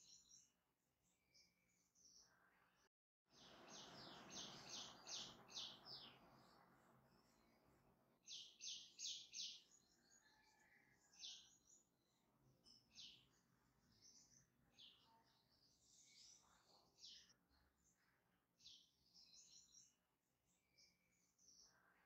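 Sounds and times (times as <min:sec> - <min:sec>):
small bird chirping: 0:00.0 - 0:00.5, 0:03.3 - 0:18.0.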